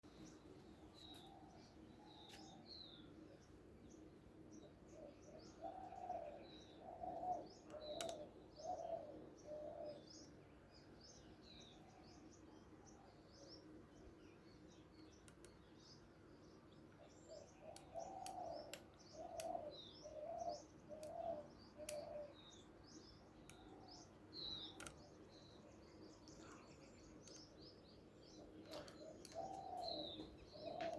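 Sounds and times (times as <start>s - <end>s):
small birds chirping: 0.0s - 30.9s
dove cooing: 5.0s - 10.1s, 17.4s - 22.4s, 28.7s - 30.9s.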